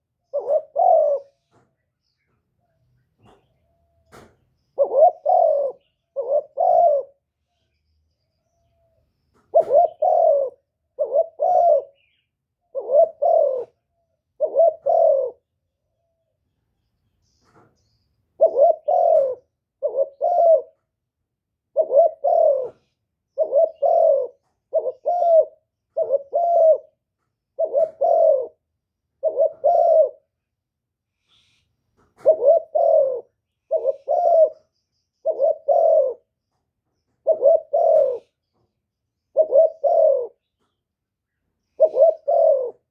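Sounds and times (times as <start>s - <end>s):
dove cooing: 0.0s - 1.7s, 2.6s - 7.8s, 8.4s - 16.3s, 18.3s - 21.0s, 21.6s - 30.4s, 32.2s - 40.8s, 41.6s - 42.9s.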